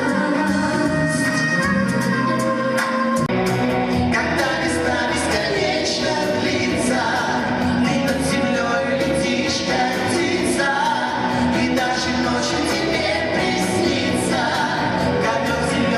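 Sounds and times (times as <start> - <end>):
keyboards or guitars holding chords: 0.0 - 15.9
live pop band music: 0.0 - 15.9.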